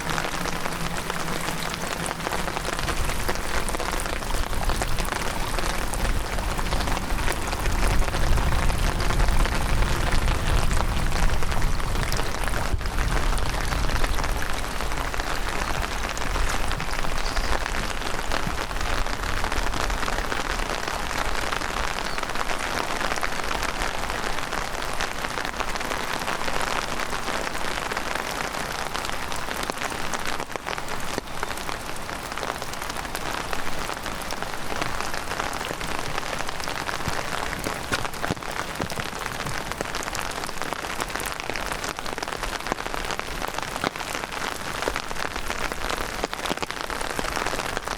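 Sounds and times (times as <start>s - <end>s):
low rumble: 0.0s - 15.0s
close raindrops ticking: 0.0s - 47.9s
heavy rain downpour: 0.0s - 47.9s.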